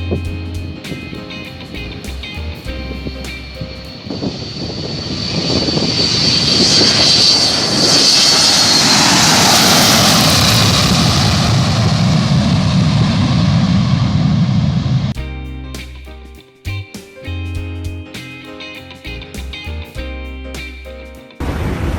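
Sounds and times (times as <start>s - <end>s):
airplane engines passing: 0.0s - 15.2s.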